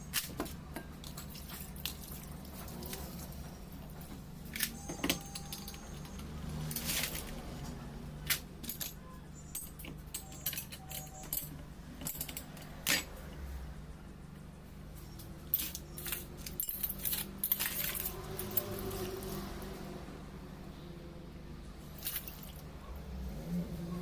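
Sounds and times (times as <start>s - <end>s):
small metal parts clinking: 4.5s - 7.4s, 8.2s - 13.3s, 15.0s - 19.4s, 21.9s - 22.7s.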